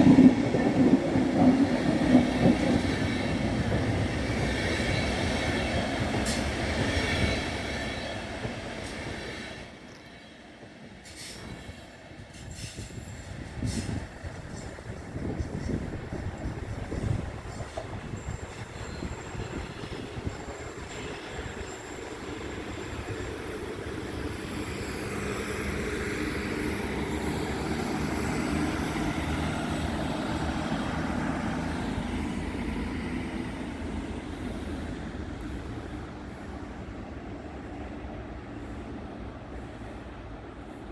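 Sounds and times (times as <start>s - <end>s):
train moving along track: 0.0s - 40.9s.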